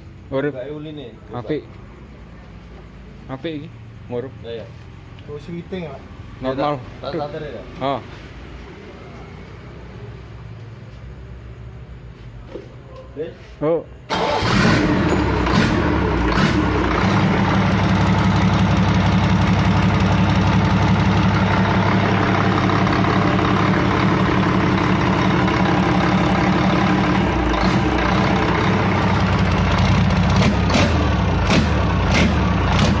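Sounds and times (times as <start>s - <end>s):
diesel engine idling: 14.1s - 33.0s.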